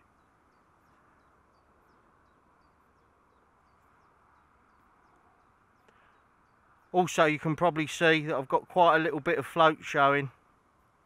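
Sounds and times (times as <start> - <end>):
small bird chirping faintly: 0.0 - 8.6.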